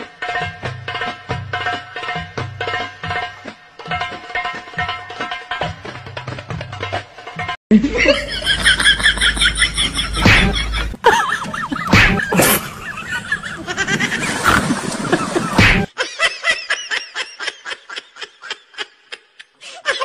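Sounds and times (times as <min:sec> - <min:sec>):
laughter: 0:07.7 - 0:20.0.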